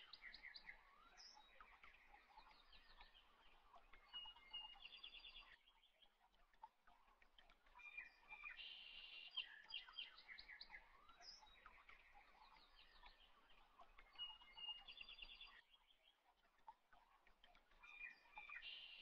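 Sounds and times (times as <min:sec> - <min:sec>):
faint bird chirps and trills: 0:00.0 - 0:19.0.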